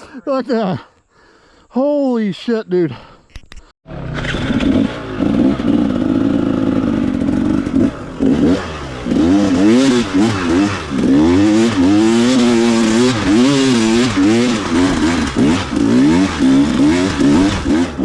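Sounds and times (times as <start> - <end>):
dirt bike engine revving: 3.9 - 18.0.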